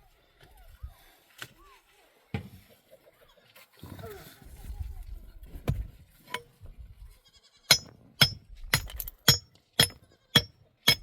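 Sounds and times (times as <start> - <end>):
metal tool striking with ringing clink: 7.7 - 11.0.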